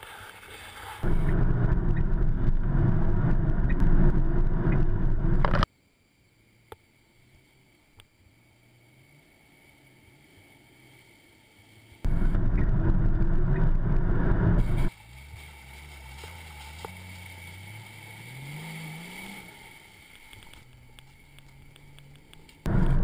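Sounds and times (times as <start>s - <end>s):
loud rush of noise: 1.0s - 5.6s, 12.1s - 14.9s, 22.6s - 23.0s
vehicle engine climbing in pitch: 1.0s - 5.6s, 12.0s - 23.0s.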